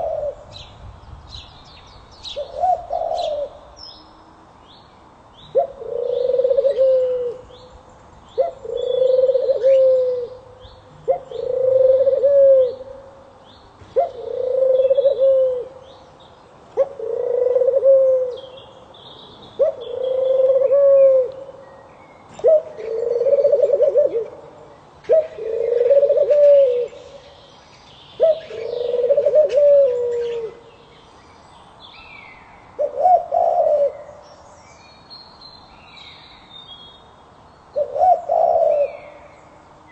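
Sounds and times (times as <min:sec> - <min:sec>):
dove cooing: 0:00.0 - 0:00.6, 0:02.4 - 0:03.7, 0:05.5 - 0:07.6, 0:08.4 - 0:13.1, 0:13.9 - 0:15.8, 0:16.8 - 0:18.5, 0:19.5 - 0:21.6, 0:22.4 - 0:27.3, 0:28.2 - 0:30.7, 0:32.8 - 0:34.2, 0:37.8 - 0:39.3
small birds chirping: 0:00.0 - 0:06.4, 0:26.8 - 0:32.8.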